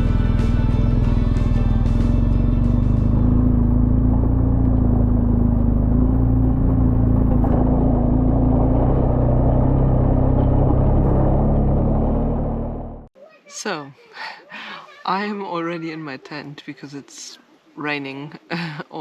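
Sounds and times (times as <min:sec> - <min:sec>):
vehicle engine droning: 0:00.0 - 0:13.1.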